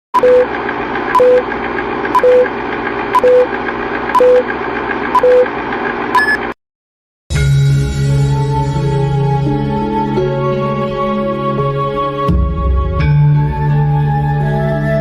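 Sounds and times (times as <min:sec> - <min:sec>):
short high and lower beeps: 0:01.2 - 0:01.4, 0:02.2 - 0:02.5, 0:03.2 - 0:03.5, 0:04.2 - 0:04.4, 0:05.2 - 0:05.5, 0:06.2 - 0:06.5.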